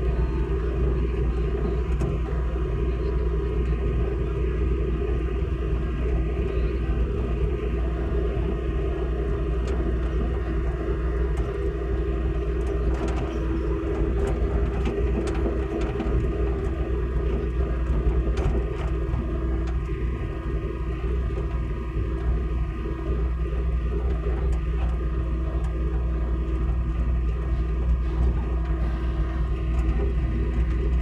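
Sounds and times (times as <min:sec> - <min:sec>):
excavator engine running: 0:00.0 - 0:31.0.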